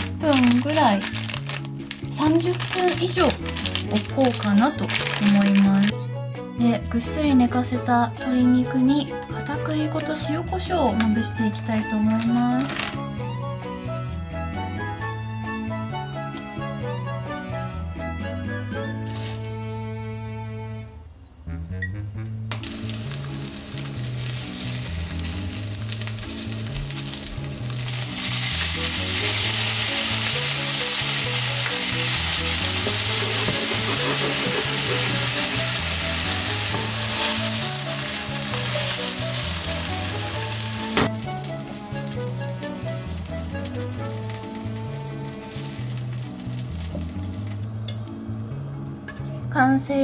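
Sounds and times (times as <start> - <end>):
chicken sizzling in oil: 22.6 - 47.6.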